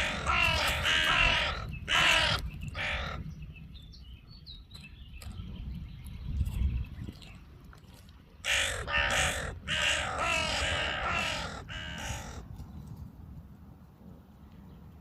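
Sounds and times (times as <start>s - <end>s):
crow cawing: 0.0s - 3.2s, 8.4s - 12.4s.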